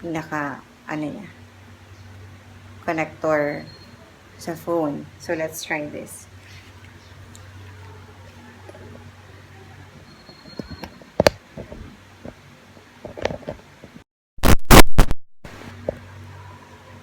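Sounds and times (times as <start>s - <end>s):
loud crackling pops: 14.4s - 15.6s.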